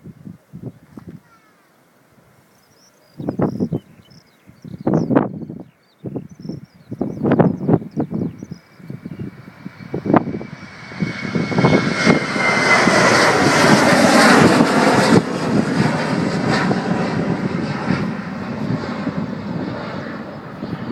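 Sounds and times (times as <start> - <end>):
high jet engine whine: 6.2 - 20.9
jet engines at take-off power: 6.8 - 20.9.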